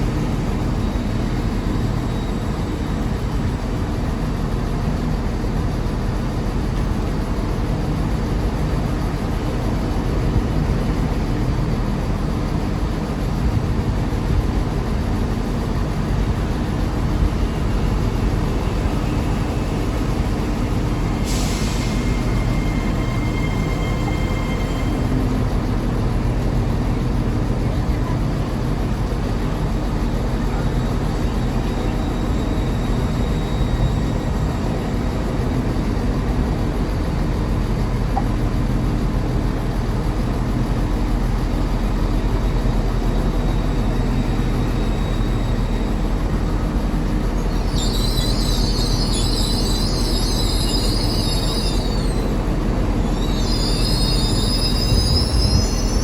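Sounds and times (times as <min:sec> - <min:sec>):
train rumbling: 0:00.0 - 0:56.0
high-pitched wheel squeal: 0:17.4 - 0:25.6, 0:47.3 - 0:56.0.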